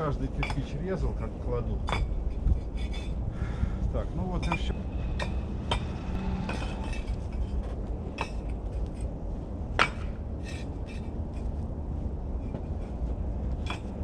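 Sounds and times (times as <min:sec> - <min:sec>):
low rumble: 0:00.0 - 0:14.0
hard objects clinking: 0:01.8 - 0:03.2, 0:04.3 - 0:09.1, 0:09.8 - 0:11.6, 0:13.5 - 0:14.0.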